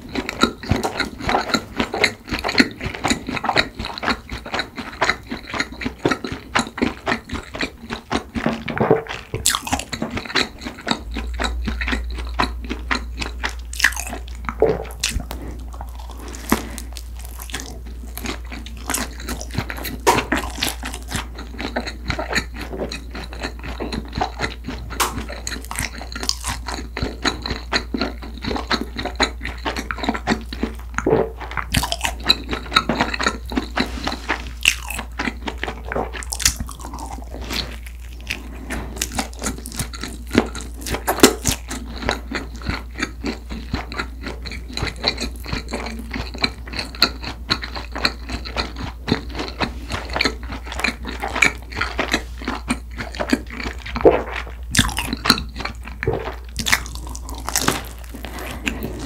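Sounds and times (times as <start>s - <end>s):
chewing crunchy bread: 0.0s - 59.0s.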